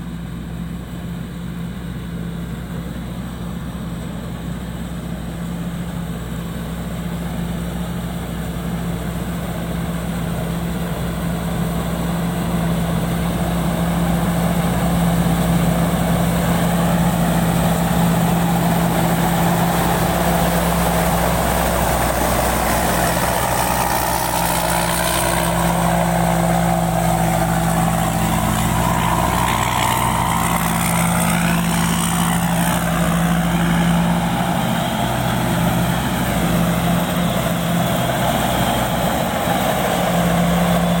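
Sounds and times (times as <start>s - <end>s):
combine harvester engine running: 0.0s - 41.0s
wavering whine: 16.4s - 37.7s.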